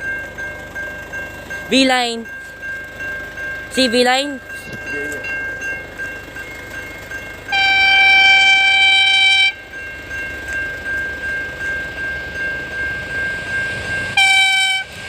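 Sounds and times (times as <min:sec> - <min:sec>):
train horn long note: 0:07.5 - 0:09.6, 0:14.1 - 0:15.0.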